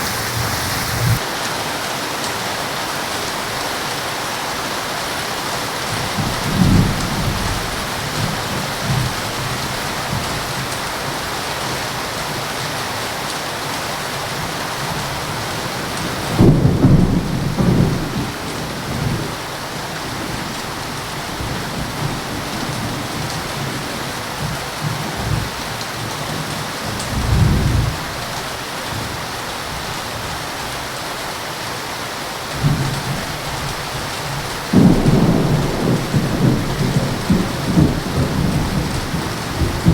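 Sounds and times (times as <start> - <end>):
thunder rolling: 0.0 - 1.2, 34.7 - 39.9
heavy rain: 0.0 - 39.9.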